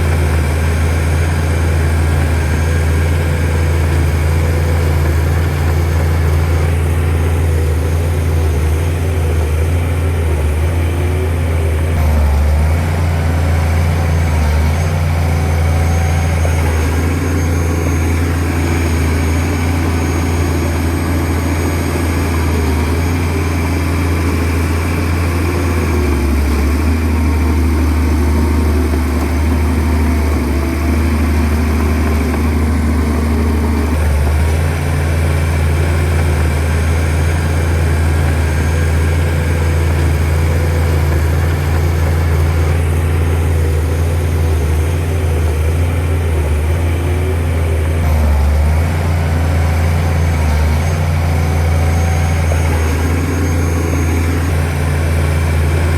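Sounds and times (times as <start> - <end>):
bulldozer diesel engine running: 0.0 - 55.9.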